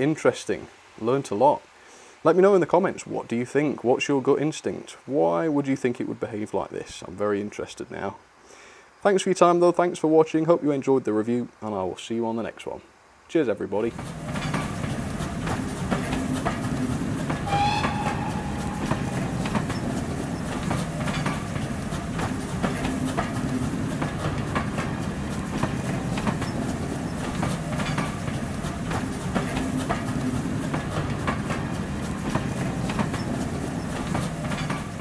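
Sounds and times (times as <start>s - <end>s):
railway coaches rumbling: 13.8s - 35.0s
wheels clickety-clack: 13.9s - 35.0s
brief high tone: 17.5s - 19.8s.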